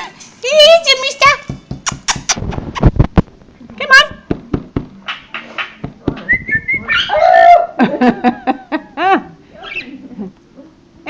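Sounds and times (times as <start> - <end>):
parrot whistle: 6.3 - 7.6
parrot chirps: 6.4 - 7.4, 9.6 - 10.0
parrot harsh call: 6.8 - 7.8, 9.6 - 10.0.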